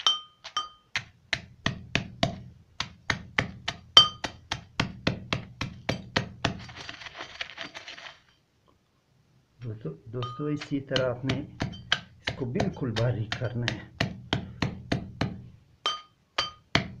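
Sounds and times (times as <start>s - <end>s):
hand pounding with metallic ring: 0.0s - 6.5s, 10.2s - 17.0s.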